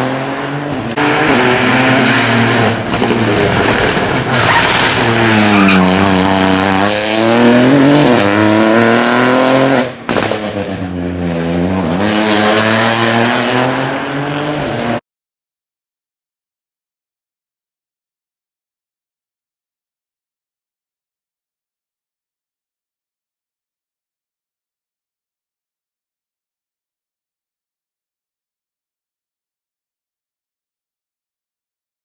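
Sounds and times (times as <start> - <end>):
rally car engine revving hard: 0.0 - 15.0
tyre noise on road: 0.0 - 15.0.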